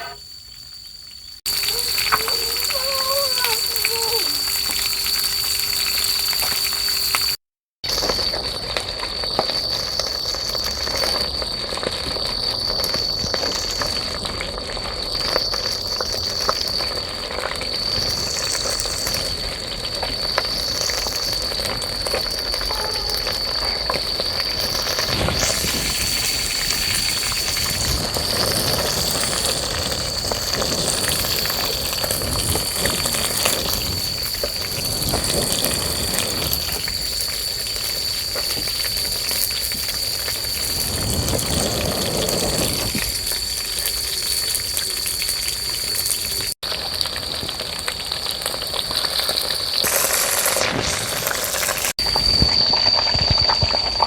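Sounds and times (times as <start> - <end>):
high-pitched insect trill: 0.0 - 54.0
small crackles: 1.4 - 54.0
continuous hiss: 1.5 - 7.3.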